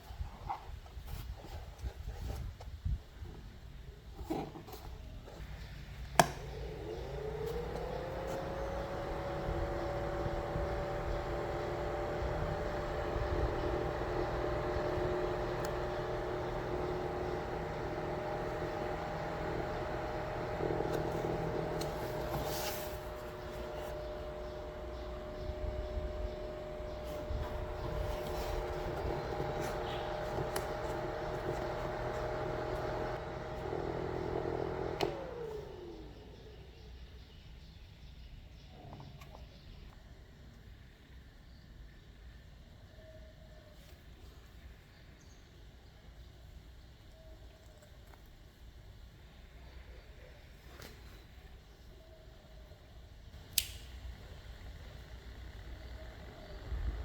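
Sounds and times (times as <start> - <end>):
small electric motor whine: 5.3 - 36.8, 54.1 - 57.0
switch click: 6.2 - 6.5, 53.5 - 54.0.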